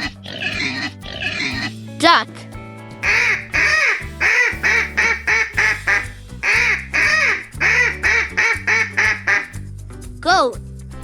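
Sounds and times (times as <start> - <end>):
background music: 0.0 - 11.0
duck quacking: 3.0 - 9.6.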